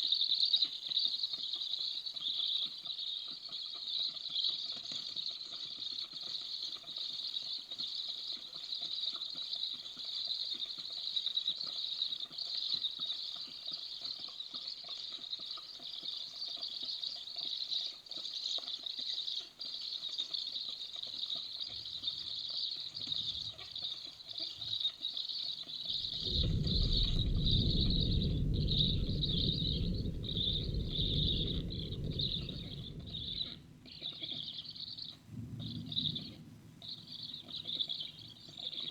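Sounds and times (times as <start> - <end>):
rain hissing: 25.8 - 38.6
thunder rumbling: 25.9 - 38.6.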